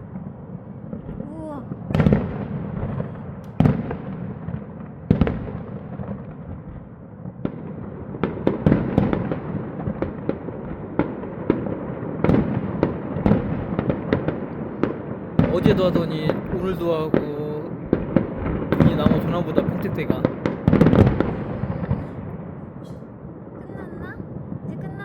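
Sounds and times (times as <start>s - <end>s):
fireworks bangs with rumbling tail: 0.0s - 25.0s
rapid fireworks pops: 0.0s - 25.0s.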